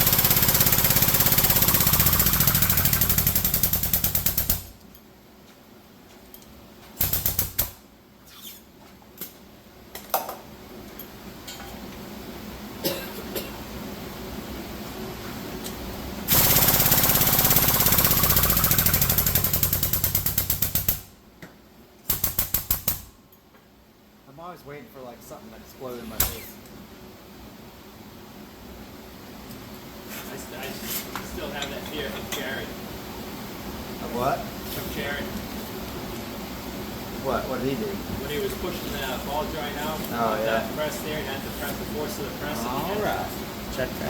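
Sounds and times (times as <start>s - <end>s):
hydraulic pump pulsing: 0.0s - 4.5s, 16.3s - 20.1s.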